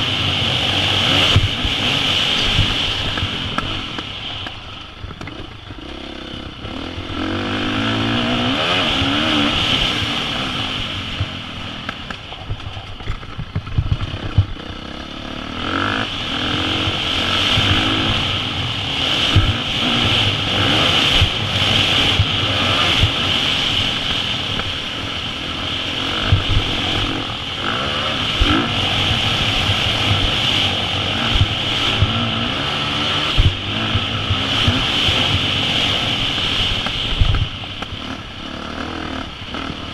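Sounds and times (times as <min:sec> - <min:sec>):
dirt bike engine revving: 0:00.0 - 0:12.3, 0:13.0 - 0:39.9.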